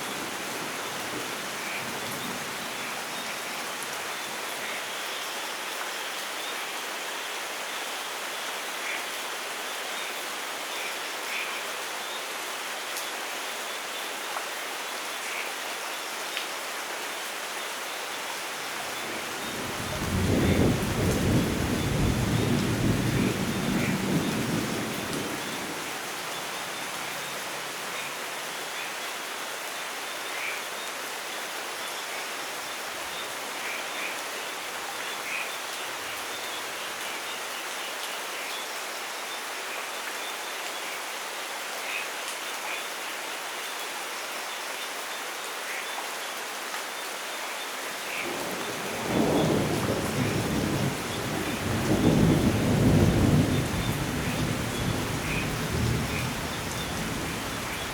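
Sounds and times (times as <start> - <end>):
steady rain falling: 0.0 - 57.9
rolling thunder: 19.6 - 25.6, 48.6 - 57.6.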